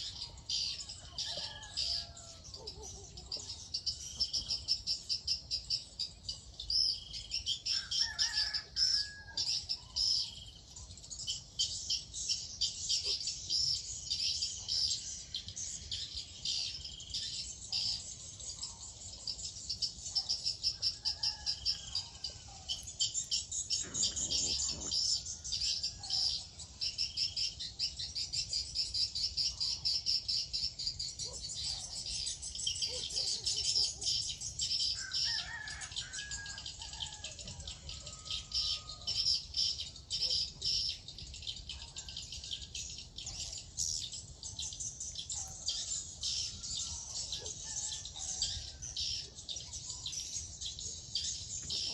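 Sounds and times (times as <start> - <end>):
high-pitched chirping and trilling: 22.7 - 25.4
lower bird calls: 23.7 - 25.3.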